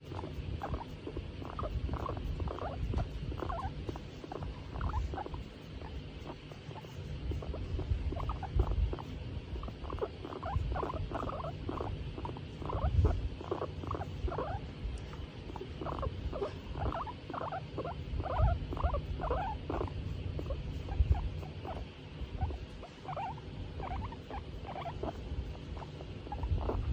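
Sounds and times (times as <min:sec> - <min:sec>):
guinea pig squeaking: 0:00.0 - 0:26.9.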